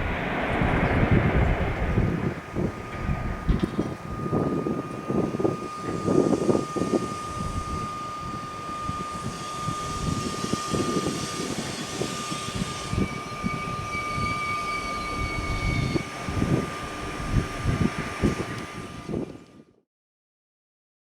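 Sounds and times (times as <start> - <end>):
rushing hiss: 0.0 - 3.0, 8.6 - 16.0
train running through station: 0.0 - 19.7
high steady tone: 2.0 - 16.8.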